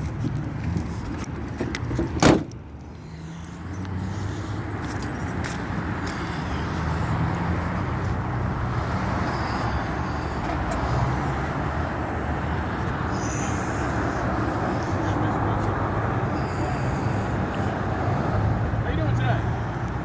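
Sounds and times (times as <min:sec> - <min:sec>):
car engine hum: 0:00.0 - 0:20.0
road and tyre noise: 0:00.0 - 0:20.0.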